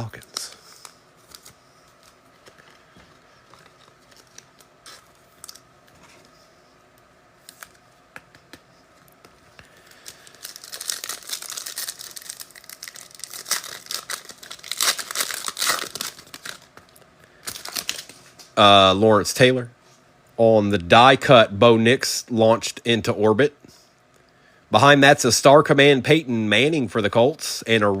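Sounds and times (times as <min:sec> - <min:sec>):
card pack wrapper tearing: 0:09.8 - 0:18.2.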